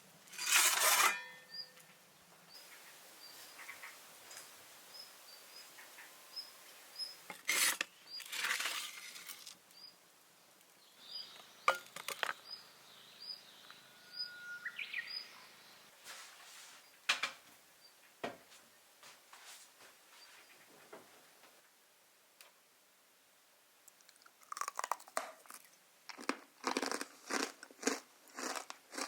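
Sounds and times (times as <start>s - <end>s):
bird chirping: 1.4s - 7.3s, 9.7s - 10.0s, 10.8s - 15.9s.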